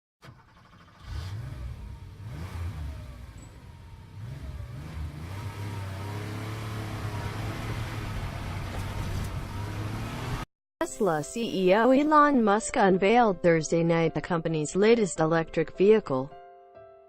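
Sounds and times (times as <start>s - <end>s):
motor vehicle running: 0.3s - 10.5s.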